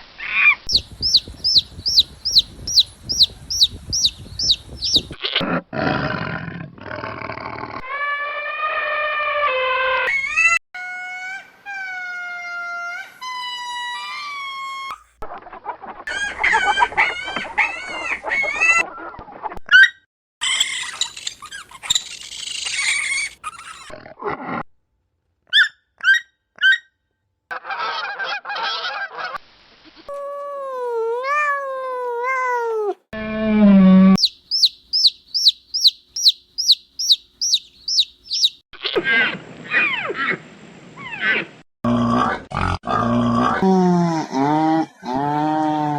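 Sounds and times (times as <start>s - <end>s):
high chirps: 0.7s - 5.2s, 34.2s - 38.6s.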